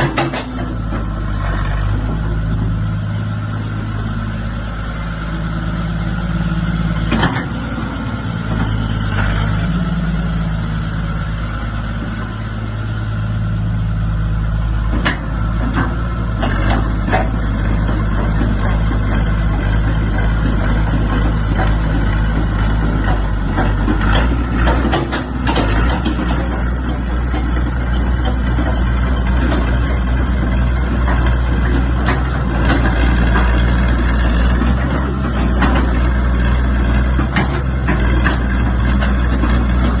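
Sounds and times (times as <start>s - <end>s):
sharp metal knocks and clanks: 0.0s - 1.1s, 14.9s - 33.7s
excavator diesel engine running: 0.0s - 40.0s.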